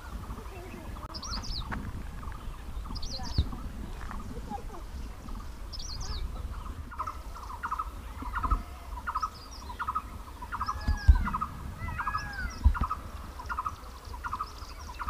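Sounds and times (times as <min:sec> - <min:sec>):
high bird chirps: 0:00.0 - 0:15.0
arching bird whistles: 0:05.0 - 0:15.0.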